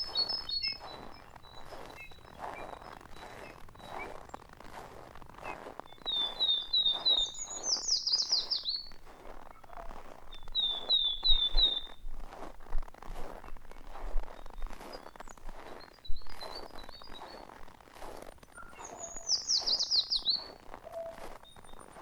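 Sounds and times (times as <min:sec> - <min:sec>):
songbird whistling song: 0:00.0 - 0:04.5, 0:05.4 - 0:12.0, 0:14.3 - 0:17.5, 0:18.5 - 0:22.0
footsteps crunching in snow: 0:00.0 - 0:22.0.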